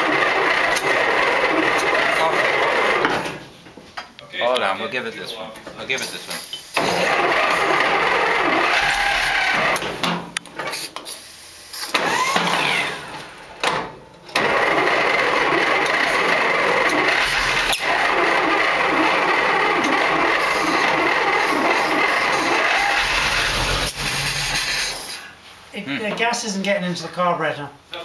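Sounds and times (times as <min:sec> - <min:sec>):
engine cranking: 0:00.0 - 0:03.2, 0:06.8 - 0:10.0, 0:11.9 - 0:13.5, 0:14.3 - 0:25.2.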